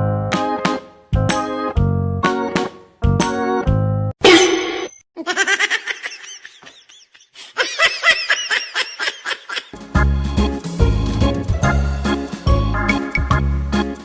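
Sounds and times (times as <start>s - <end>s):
music: 0.0s - 4.1s, 9.8s - 14.0s
laughter: 5.2s - 9.8s.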